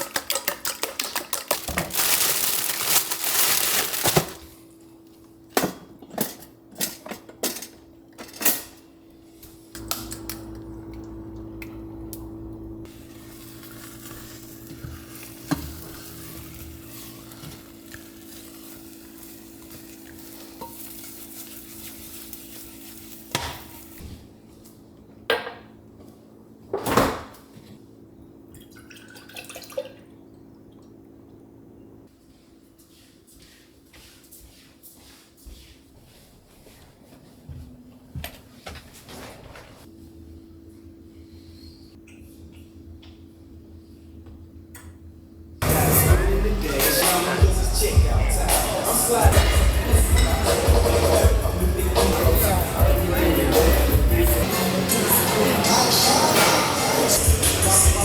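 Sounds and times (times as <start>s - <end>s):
dishes and utensils clinking: 0.0s - 2.2s, 49.2s - 51.4s
steady low hum: 9.0s - 20.7s.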